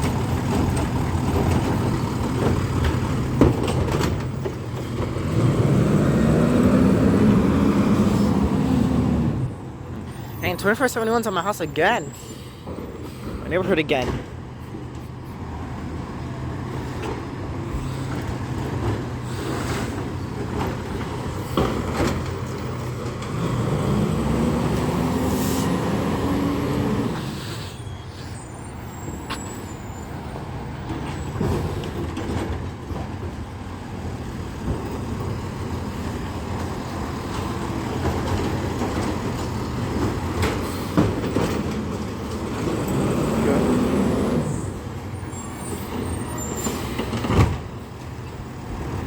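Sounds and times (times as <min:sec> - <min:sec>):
knocks and clanks: 0:00.0 - 0:05.3
garbage truck engine revving: 0:00.0 - 0:09.8, 0:17.5 - 0:27.6, 0:34.5 - 0:47.6.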